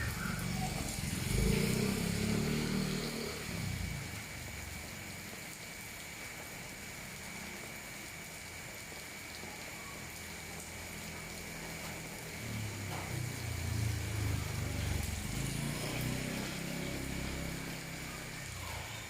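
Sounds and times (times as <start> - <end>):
vehicle engine passing: 0.0 - 4.4, 12.3 - 18.9
steady rain: 0.0 - 19.0.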